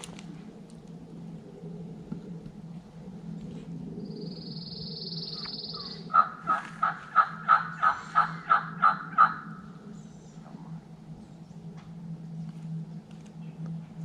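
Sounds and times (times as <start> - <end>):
turkey yelps: 5.4 - 9.6.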